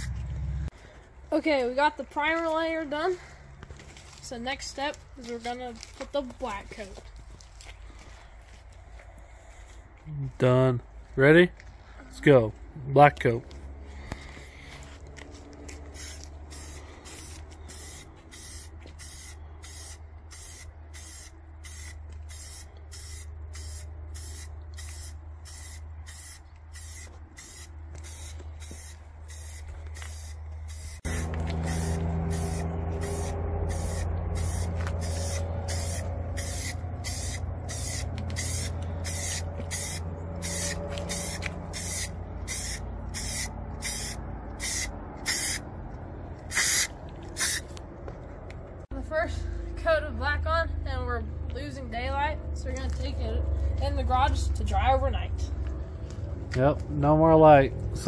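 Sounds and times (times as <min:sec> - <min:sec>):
spray-paint can hissing bursts: 0:15.9 - 0:45.6, 0:46.5 - 0:47.6.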